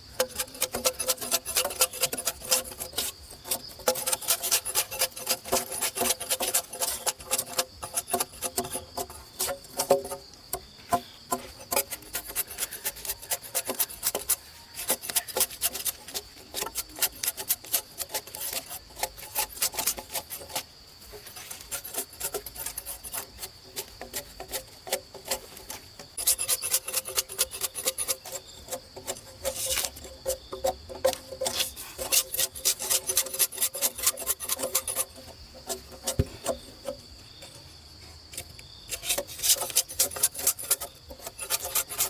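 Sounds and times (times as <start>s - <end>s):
hand tool rasping wood: 0.0s - 42.0s.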